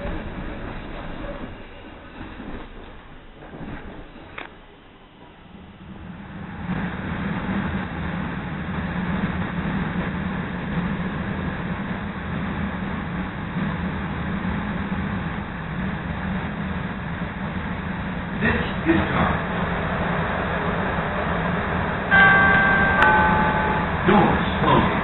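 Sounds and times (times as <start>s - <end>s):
train rumble and hum: 0.0s - 25.0s.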